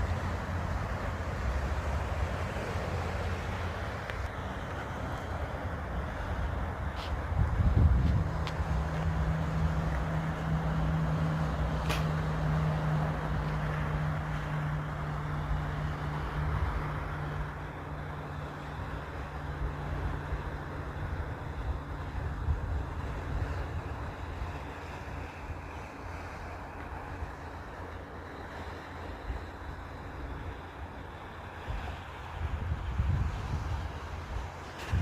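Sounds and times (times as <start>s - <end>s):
boat engine droning: 0.0s - 35.0s
wind buffeting microphone: 5.9s - 17.6s, 31.1s - 35.0s
sharp click: 11.8s - 12.2s.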